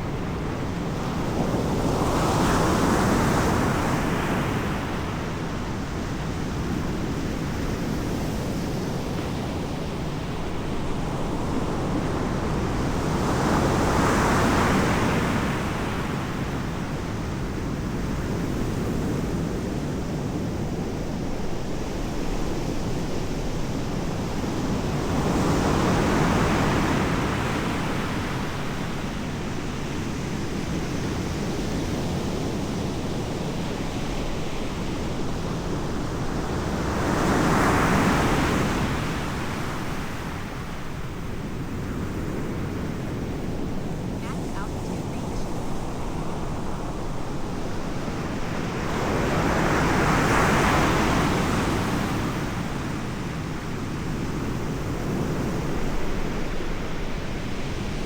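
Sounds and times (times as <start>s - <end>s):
sea and wind rushing: 0.0s - 58.0s
waves breaking: 43.5s - 53.1s.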